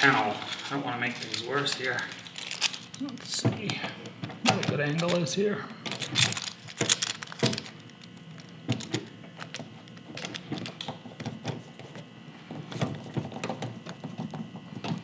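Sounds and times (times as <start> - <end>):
faint high hum: 0.0 - 15.0
tools clicking and knocking: 0.5 - 3.8, 5.9 - 8.0.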